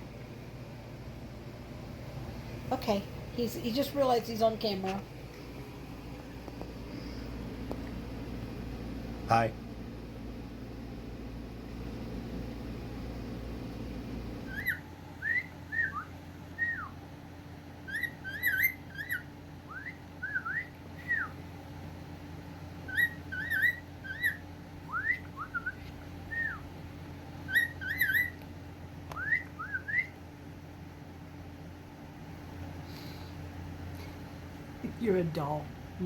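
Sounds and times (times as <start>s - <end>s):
cockatiel whistling: 14.4s - 17.0s, 17.8s - 21.4s, 22.9s - 26.7s, 27.5s - 28.4s, 29.1s - 30.2s.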